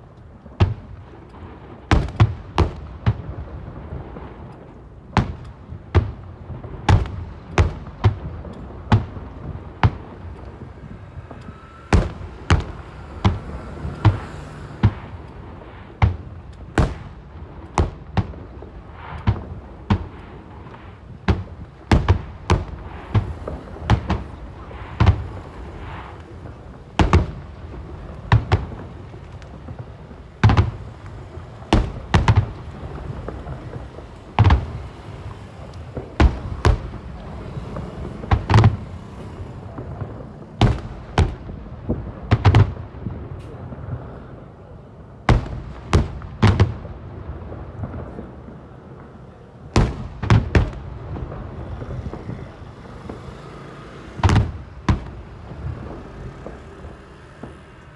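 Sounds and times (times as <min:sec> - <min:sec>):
fireworks shells booming: 0:00.0 - 0:57.9
low rumble: 0:08.2 - 0:17.7.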